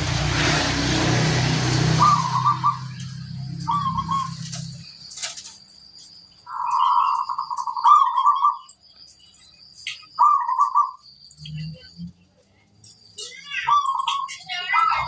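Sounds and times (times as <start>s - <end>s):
dove cooing: 2.0s - 4.7s, 6.5s - 8.7s, 10.2s - 11.0s.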